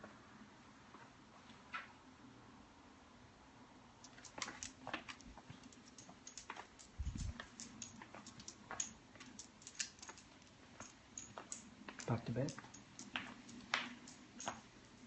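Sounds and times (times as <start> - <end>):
dog claws clicking and tapping: 4.0 - 14.9.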